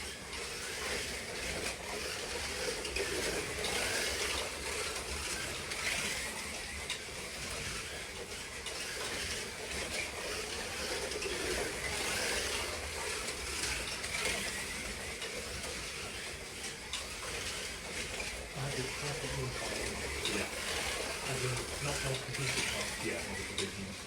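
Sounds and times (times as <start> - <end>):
slot car motors whining: 0.0 - 24.0.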